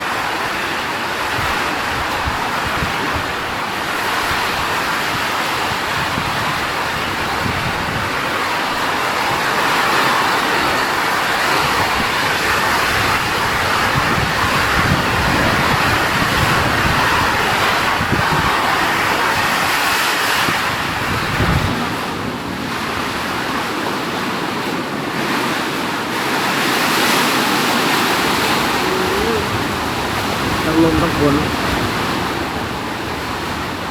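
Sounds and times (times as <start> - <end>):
wind buffeting microphone: 0.0 - 33.9
heavy rain hissing: 26.4 - 33.9.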